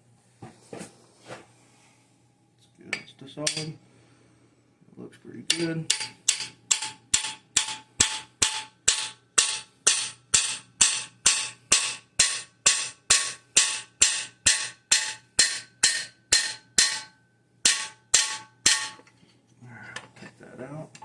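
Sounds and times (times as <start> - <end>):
hammer striking steel driver: 2.9 - 3.8, 5.5 - 19.1.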